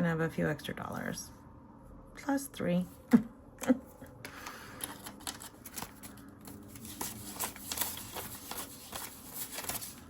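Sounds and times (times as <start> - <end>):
paper banknotes rustling: 4.7 - 10.0.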